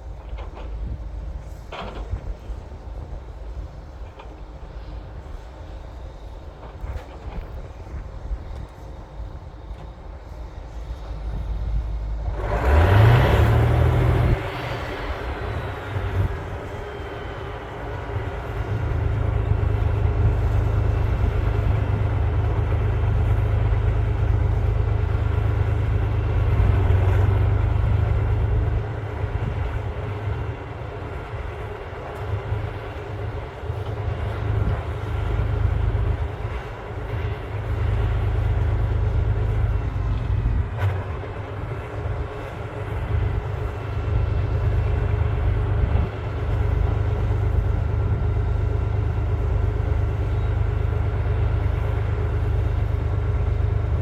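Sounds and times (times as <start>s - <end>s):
bulldozer diesel engine revving: 12.2s - 30.4s.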